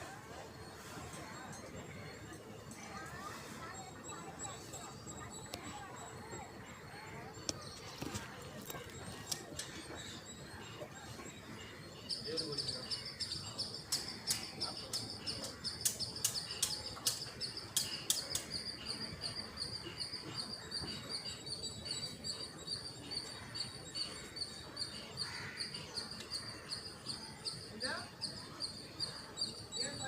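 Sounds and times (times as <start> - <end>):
rapid high-pitched chirping: 9.0 - 30.0
sharp clicks: 13.9 - 18.6.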